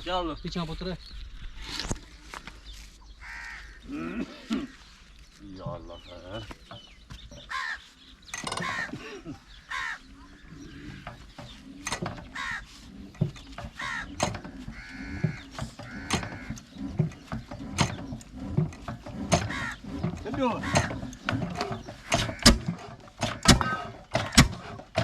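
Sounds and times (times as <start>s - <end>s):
crows cawing: 3.2s - 5.0s, 7.4s - 11.2s, 12.2s - 16.7s, 19.3s - 21.2s, 21.8s - 24.7s
mechanical clanks and knocks: 8.3s - 9.0s, 11.0s - 25.0s.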